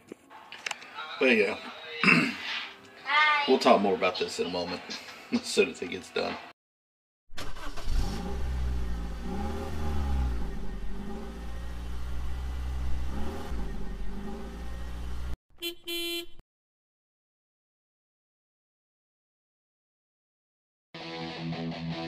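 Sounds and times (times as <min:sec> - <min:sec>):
car engine revving: 0:07.4 - 0:15.4
car horn honk: 0:15.5 - 0:16.4.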